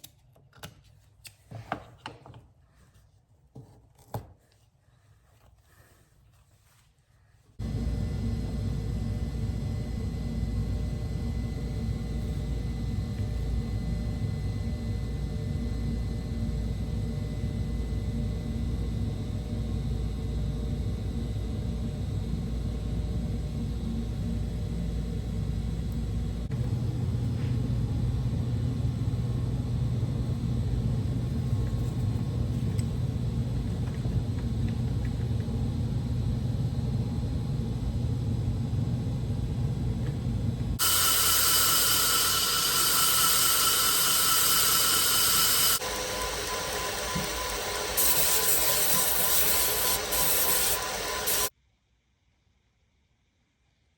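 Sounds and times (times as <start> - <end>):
machine rumble with hum: 7.6 - 51.5
steady low hum: 7.6 - 51.5.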